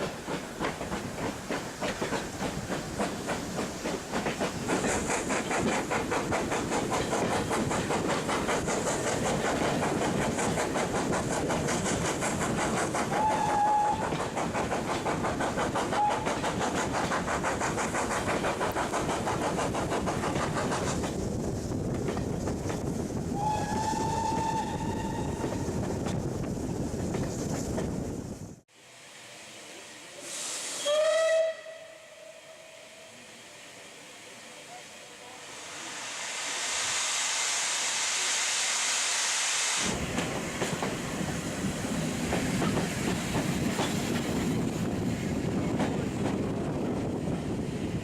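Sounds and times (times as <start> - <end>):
steam locomotive exhaust beat: 0.0 - 28.5, 35.2 - 48.0
train wheels on rails: 0.0 - 31.9, 33.0 - 48.0
steam whistle: 13.2 - 14.1, 16.0 - 16.4, 23.4 - 25.4, 30.1 - 33.2.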